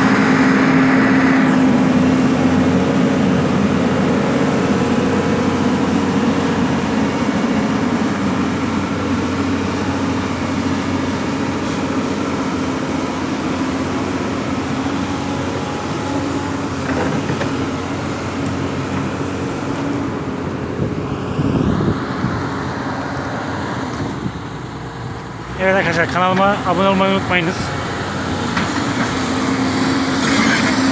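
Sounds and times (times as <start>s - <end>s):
heavy machinery engine drone: 0.0s - 30.9s.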